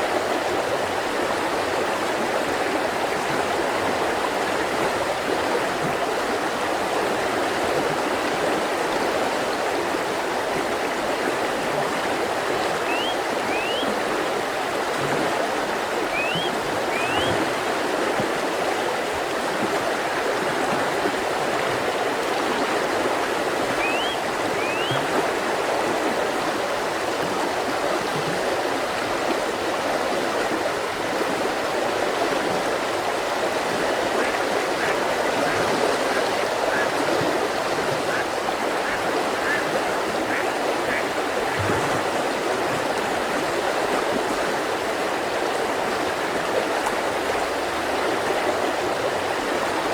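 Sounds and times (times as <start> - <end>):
river flowing over rocks: 0.0 - 49.9
bird whistling: 12.8 - 14.0, 16.1 - 17.4, 23.8 - 25.0.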